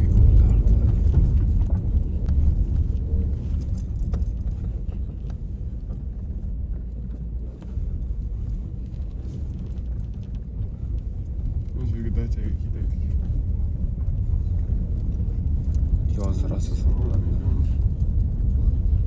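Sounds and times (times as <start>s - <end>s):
car driving slowly: 0.0s - 19.0s.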